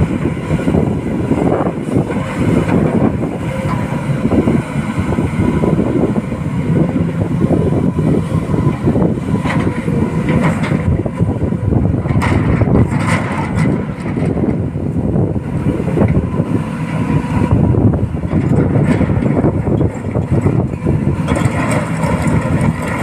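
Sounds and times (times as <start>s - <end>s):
heavy diesel machinery rumbling: 0.0s - 23.0s
wind buffeting microphone: 0.0s - 23.0s.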